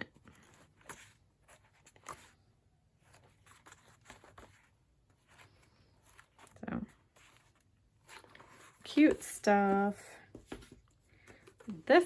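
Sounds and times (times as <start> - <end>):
book pages turning: 0.1 - 11.9.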